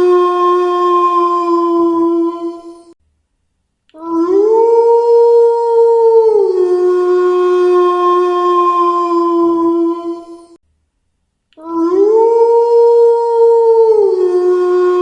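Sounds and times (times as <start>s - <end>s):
wolf howling: 0.0s - 3.0s, 4.0s - 10.6s, 11.6s - 15.0s.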